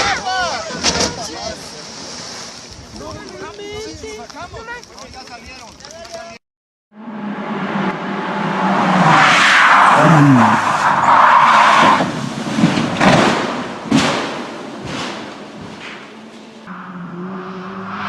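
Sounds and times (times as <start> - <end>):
tyres skidding: 7.1 - 18.0
sharp impact knocks: 12.6 - 16.2.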